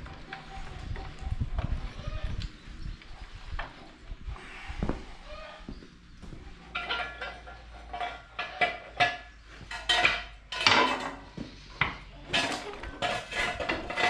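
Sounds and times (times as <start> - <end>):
metallic clanks and rattles: 6.6 - 14.0.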